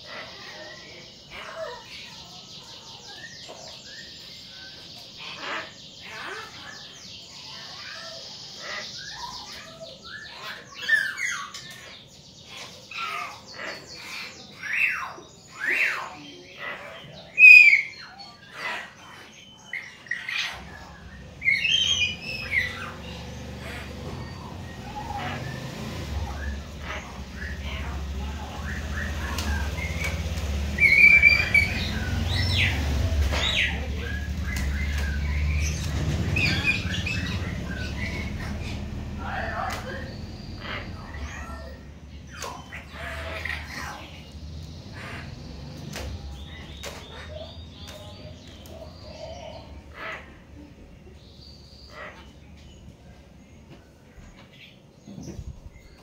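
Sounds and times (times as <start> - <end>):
loud sweeping bird calls: 0.0 - 56.0
mynas whistling and chirping: 30.8 - 33.8.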